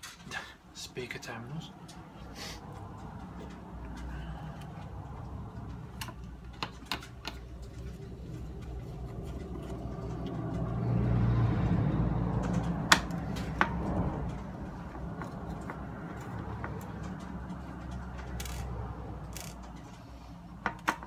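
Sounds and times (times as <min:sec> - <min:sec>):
plastic parts clicking and knocking: 0:03.0 - 0:10.8, 0:12.3 - 0:21.0.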